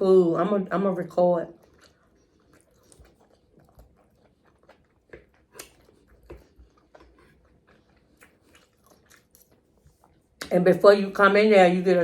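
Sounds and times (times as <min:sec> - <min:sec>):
chewing and lip-smacking: 0:01.4 - 0:10.6
wet mouth clicks: 0:01.7 - 0:07.4.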